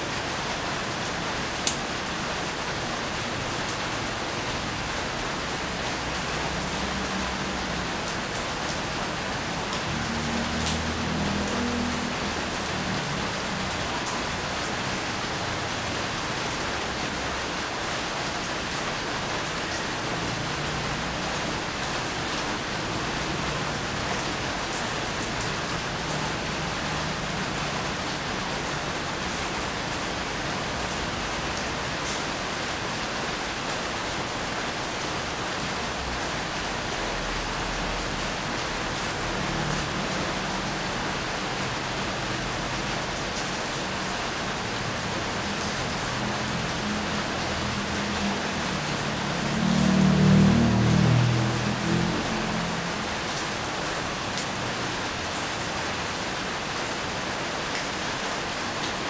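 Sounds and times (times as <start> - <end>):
steady rain hiss: 0.0 - 59.0
raindrops ticking: 9.7 - 12.8.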